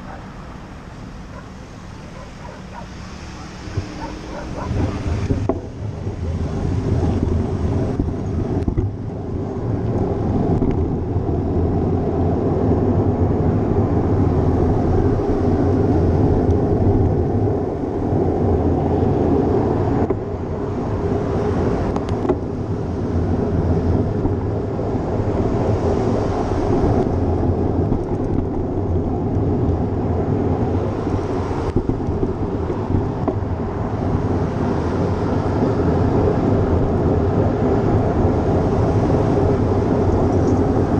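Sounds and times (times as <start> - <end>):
wind rumbling on microphone: 0.0 - 40.9.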